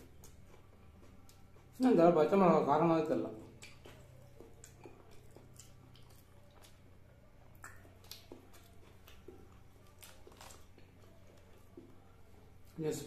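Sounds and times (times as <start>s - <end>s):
chewing food: 0.0s - 2.0s, 3.2s - 12.8s
wet mouth clicks: 3.5s - 6.7s, 7.6s - 8.4s.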